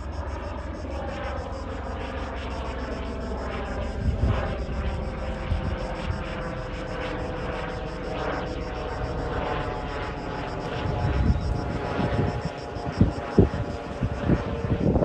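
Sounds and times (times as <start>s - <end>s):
helicopter in flight: 0.0s - 15.0s
wind buffeting microphone: 3.8s - 7.5s, 9.2s - 15.0s.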